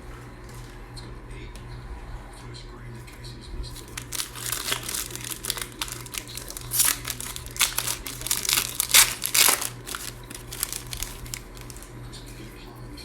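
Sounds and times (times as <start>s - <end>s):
plastic wrapper tearing and crinkling: 3.7s - 11.9s.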